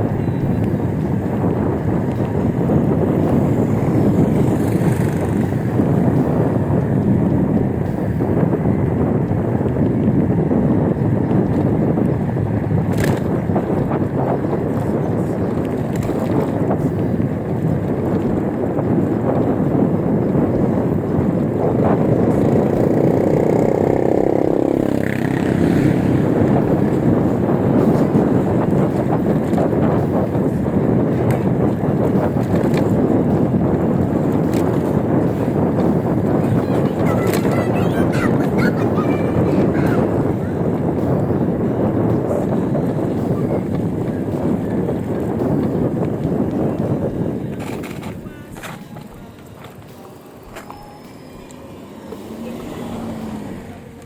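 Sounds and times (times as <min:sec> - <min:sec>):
road noise: 0:00.0 - 0:54.0
wind buffeting microphone: 0:00.0 - 0:54.0
vehicle engine passing by: 0:22.2 - 0:29.4, 0:51.2 - 0:54.0.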